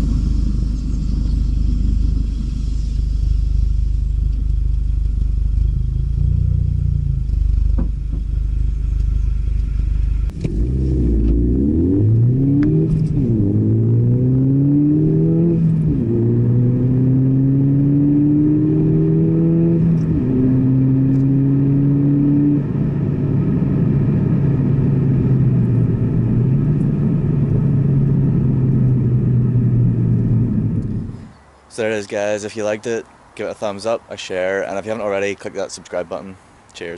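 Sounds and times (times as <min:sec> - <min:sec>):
car engine revving through gears: 0:10.2 - 0:31.2.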